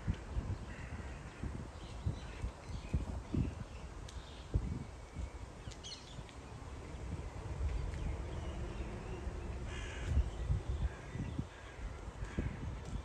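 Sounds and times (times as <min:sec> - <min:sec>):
low rumble: 0:06.8 - 0:11.1
harsh cawing bird call: 0:09.7 - 0:12.6.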